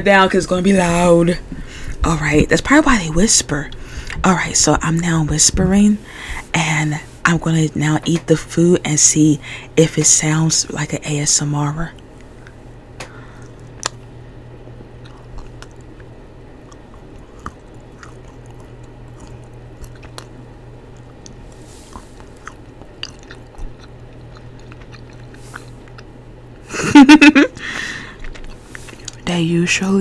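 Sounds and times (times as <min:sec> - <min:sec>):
steady low hum: 0:00.0 - 0:30.0
chocolate crunching and chewing: 0:13.4 - 0:14.1, 0:15.0 - 0:26.6, 0:27.8 - 0:29.3.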